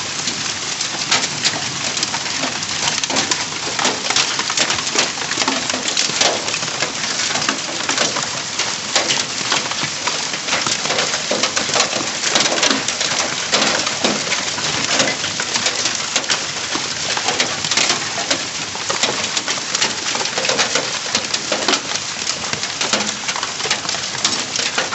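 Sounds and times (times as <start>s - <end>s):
hail clattering on surfaces: 0.0s - 24.9s.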